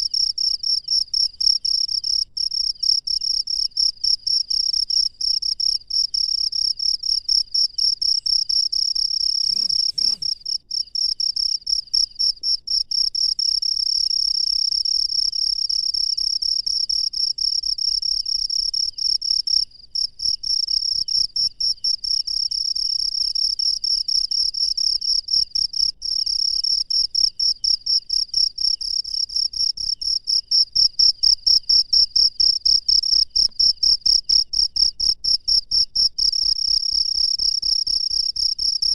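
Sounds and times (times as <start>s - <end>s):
cricket trilling: 8.2s - 11.5s.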